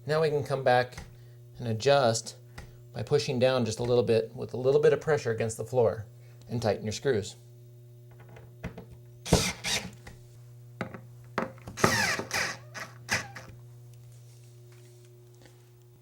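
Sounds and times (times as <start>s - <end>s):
screws being tightened: 9.3s - 10.0s, 11.8s - 13.5s.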